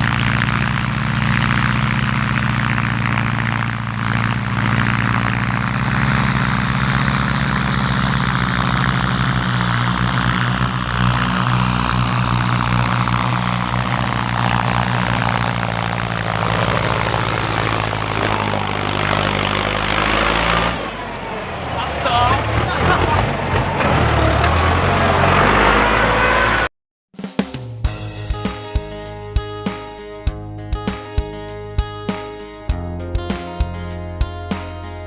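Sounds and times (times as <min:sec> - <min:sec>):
tractor diesel engine running: 0:00.0 - 0:26.7, 0:27.9 - 0:35.0.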